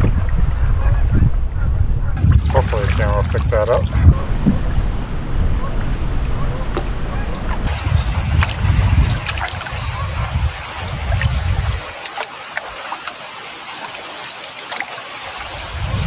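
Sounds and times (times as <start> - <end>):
wind buffeting microphone: 0.0 - 14.2, 15.0 - 16.0
river water trickling and splashing: 2.2 - 4.2, 7.7 - 16.0.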